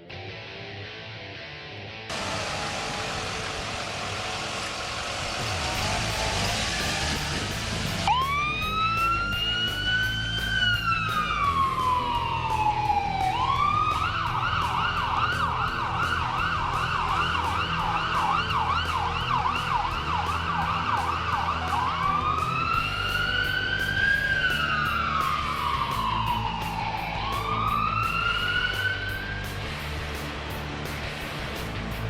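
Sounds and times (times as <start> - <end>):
low vehicle rumble: 2.1 - 32.0
electronic siren wailing and yelping: 8.0 - 29.5.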